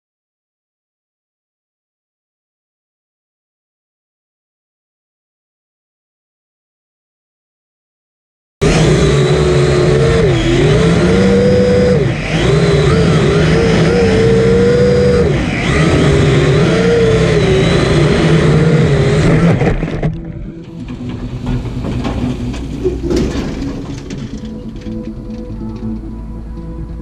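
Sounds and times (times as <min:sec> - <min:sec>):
quadcopter motors buzzing: 0:08.6 - 0:20.0.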